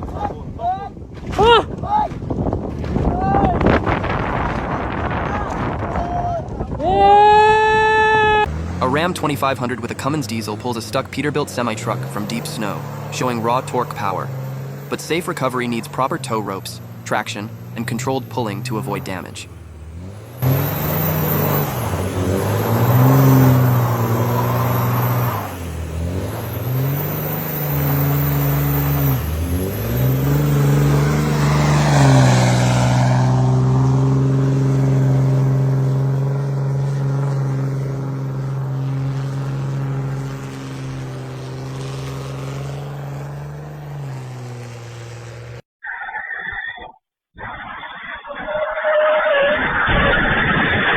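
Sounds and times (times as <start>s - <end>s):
diesel engine revving hard: 7.1s - 45.6s.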